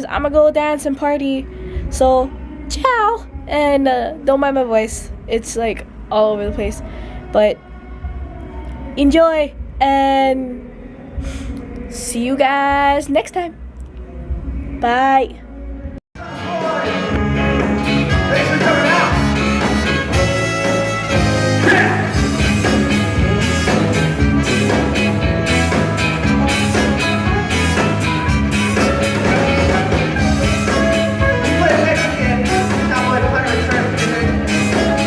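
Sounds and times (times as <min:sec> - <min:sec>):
steady drum beat: 0:04.8 - 0:08.5, 0:12.6 - 0:13.7, 0:16.9 - 0:35.0
person singing: 0:15.6 - 0:22.9, 0:25.4 - 0:35.0
live rock band playing: 0:16.2 - 0:35.0.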